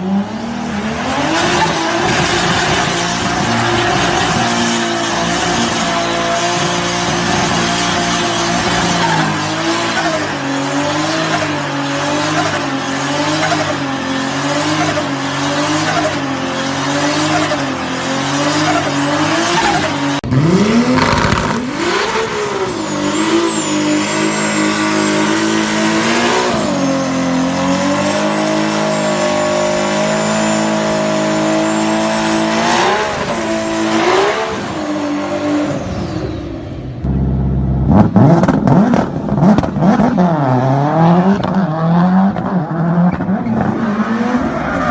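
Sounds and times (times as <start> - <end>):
turbocharged car engine revving: 0.0 - 44.9
thin high whistle: 22.0 - 26.8.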